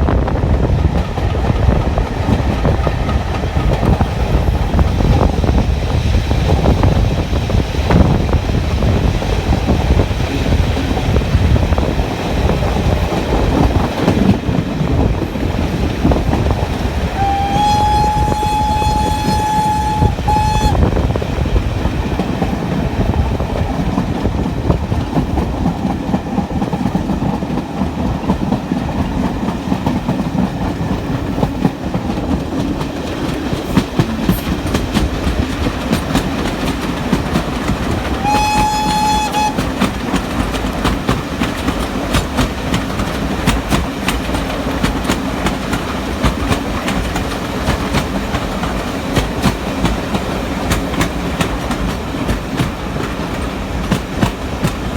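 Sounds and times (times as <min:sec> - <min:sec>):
train rumble and wheel clatter: 0:00.0 - 0:54.9
train horn blast: 0:17.1 - 0:21.1, 0:38.0 - 0:39.9.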